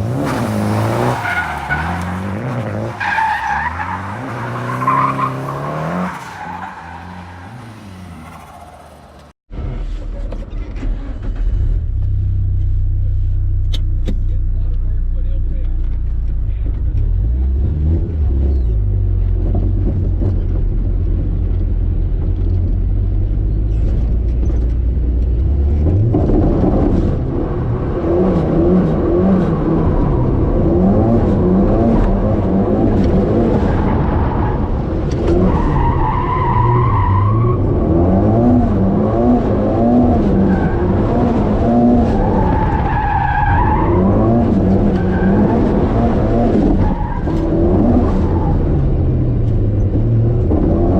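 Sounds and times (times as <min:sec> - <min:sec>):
tires squealing: 0:00.0 - 0:10.0, 0:26.4 - 0:49.2
car engine revving: 0:10.6 - 0:50.9.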